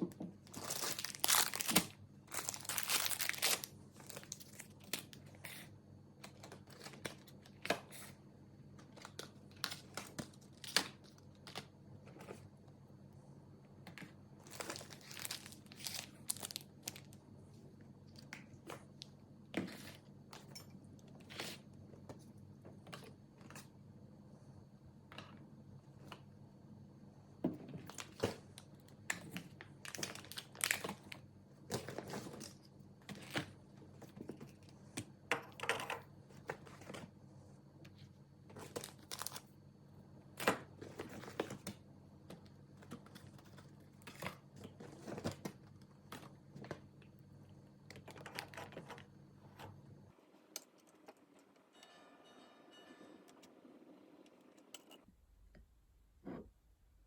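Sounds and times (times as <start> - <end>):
wrappers crinkling: 0.5 - 5.2, 14.4 - 17.2.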